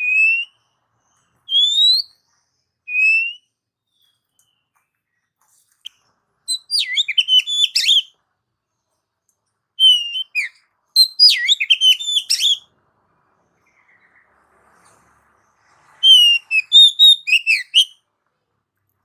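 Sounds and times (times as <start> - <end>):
bird singing whistled notes: 0.0 - 5.0, 5.8 - 8.2, 9.8 - 12.7, 15.8 - 18.0.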